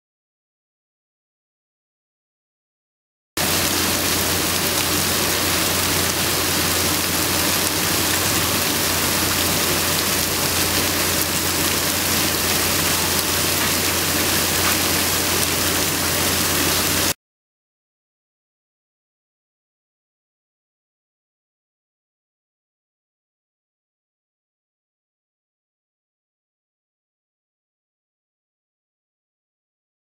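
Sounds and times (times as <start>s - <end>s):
hail and rain pelting down: 3.4s - 17.2s.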